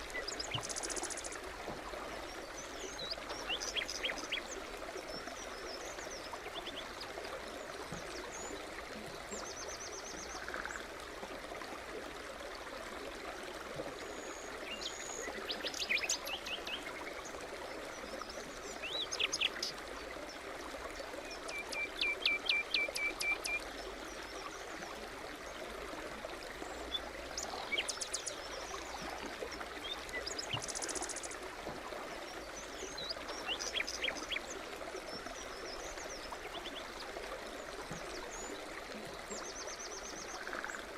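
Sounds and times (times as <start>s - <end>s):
songbirds chirping: 0.0s - 11.0s, 13.8s - 40.9s
forest brook running: 0.0s - 40.9s.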